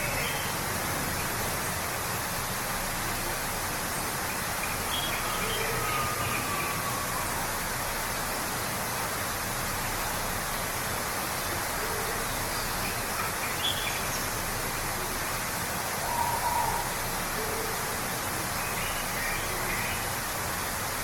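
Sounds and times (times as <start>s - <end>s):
waterfall rushing: 0.0s - 21.0s
faint bird calls: 16.0s - 17.8s.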